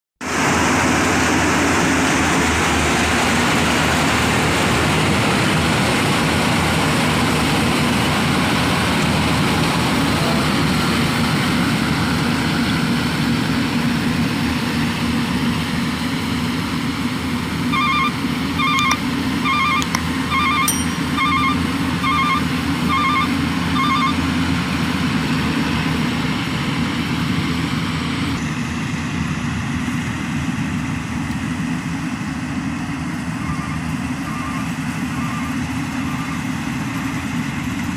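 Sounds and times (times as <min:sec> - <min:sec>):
combine harvester engine running: 0:00.3 - 0:37.9
electronic beeps: 0:17.7 - 0:24.2.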